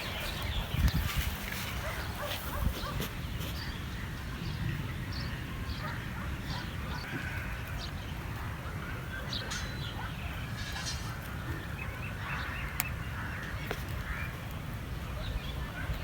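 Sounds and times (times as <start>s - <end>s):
farm animal calls: 5.7s - 13.4s.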